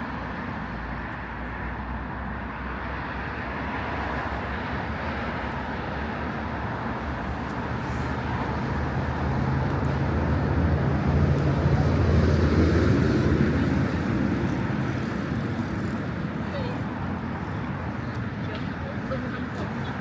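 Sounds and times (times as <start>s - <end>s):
street traffic: 0.0s - 20.0s.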